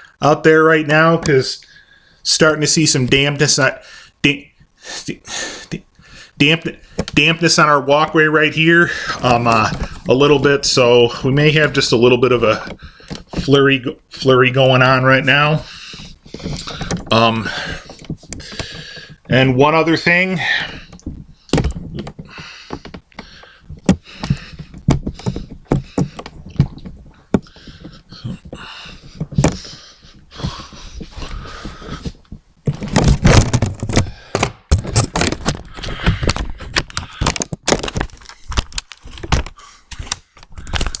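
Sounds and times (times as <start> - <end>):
knocks and thumps: 6.7 - 7.3, 9.0 - 11.8, 12.4 - 13.7, 14.7 - 41.0
rustling: 8.5 - 41.0.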